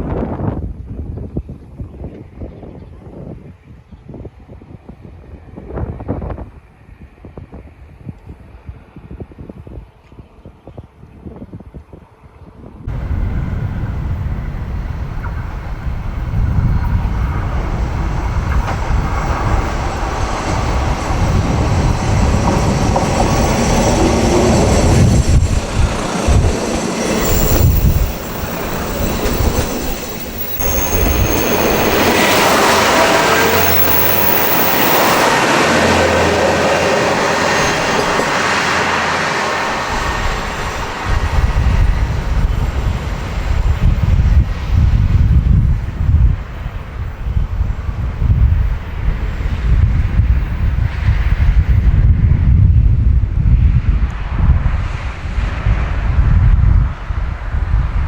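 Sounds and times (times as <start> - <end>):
low engine hum: 12.8 - 58.0
wheels rumbling on rail: 12.8 - 58.0
faint high wheel squeal: 26.2 - 35.4, 36.3 - 40.8.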